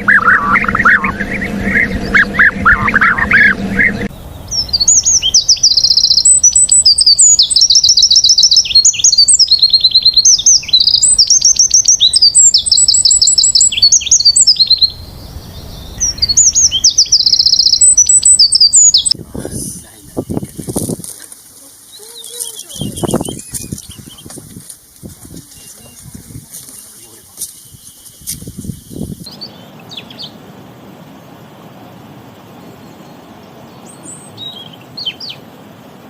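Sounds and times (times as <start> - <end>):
lower-pitched bird call: 0.0 - 19.2, 21.8 - 24.3
songbird trilling: 0.0 - 30.4, 32.6 - 35.5.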